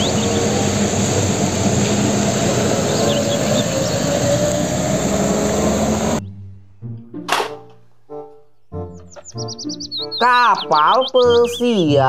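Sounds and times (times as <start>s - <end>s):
truck diesel engine: 0.0s - 6.2s
tyres hissing on wet road: 0.0s - 6.2s
bird chirping: 0.0s - 7.0s, 8.4s - 12.0s.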